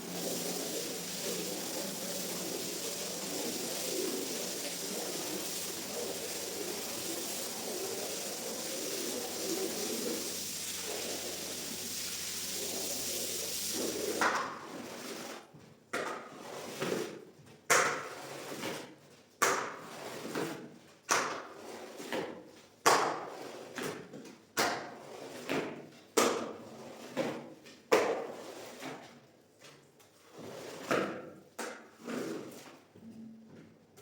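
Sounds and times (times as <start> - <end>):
steady hiss: 0.0 - 15.4.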